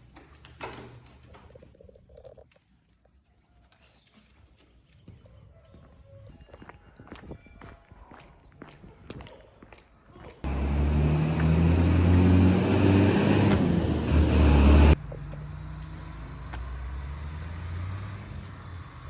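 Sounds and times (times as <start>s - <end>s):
engine humming: 10.4s - 19.0s
quieter engine hum: 10.4s - 19.0s.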